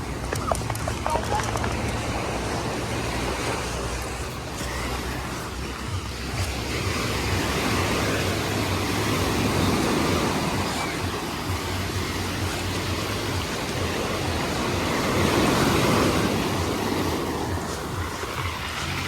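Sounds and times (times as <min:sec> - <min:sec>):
sea surf washing onto beach: 0:00.0 - 0:19.0.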